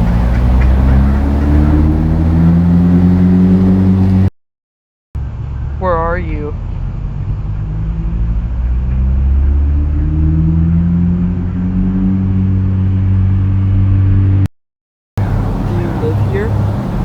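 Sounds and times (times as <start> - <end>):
vehicle engine accelerating: 0.0 - 4.3, 5.2 - 14.5, 15.2 - 17.0.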